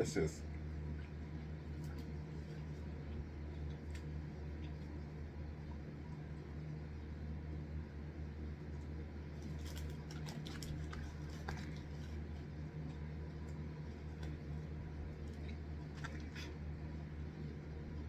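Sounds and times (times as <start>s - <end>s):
low hum: 0.0s - 18.0s
chewing and food handling clicks: 0.5s - 5.0s, 8.7s - 14.6s.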